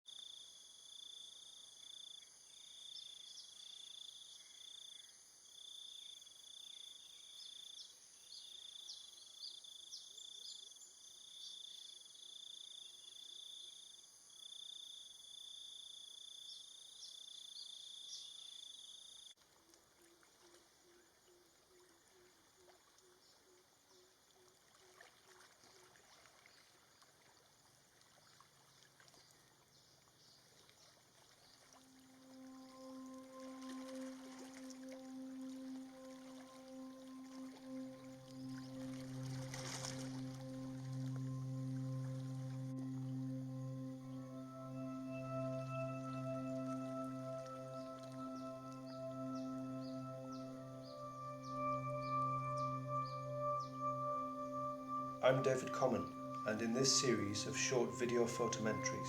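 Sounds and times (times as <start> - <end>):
insect chorus: 0.1 - 59.0
low rapidly pulsing call: 32.2 - 59.0.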